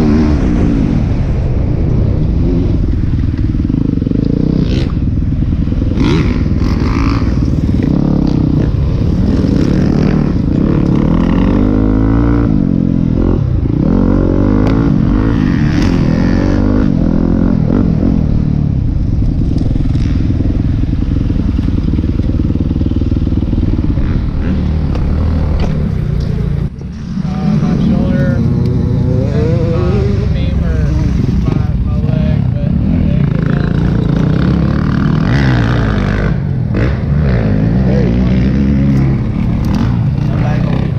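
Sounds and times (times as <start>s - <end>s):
dirt bike engine revving: 2.3s - 40.9s.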